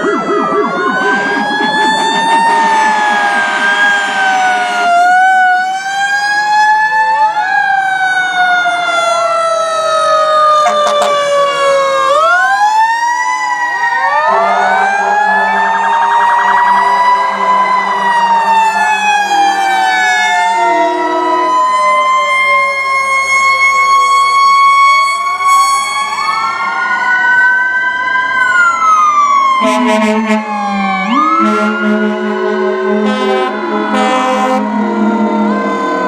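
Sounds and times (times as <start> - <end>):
low drone: 0.0 - 6.7
fire truck sirens wailing: 0.0 - 36.0
horn sounding: 10.6 - 11.7, 29.6 - 35.1.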